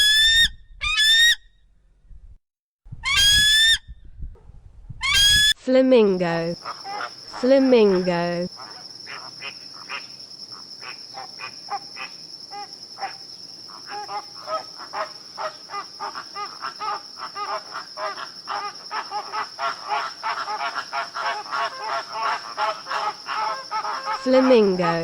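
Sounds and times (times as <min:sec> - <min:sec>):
high insect trill: 0:05.2 - 0:25.0
flamingos honking: 0:13.7 - 0:25.0.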